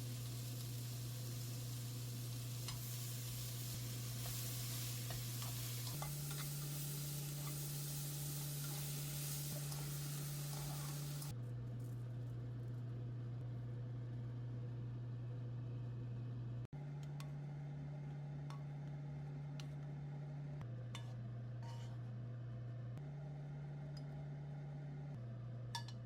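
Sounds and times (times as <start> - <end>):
vegetables sizzling in a frying pan: 0.0 - 11.3
low steady hum: 0.0 - 26.0.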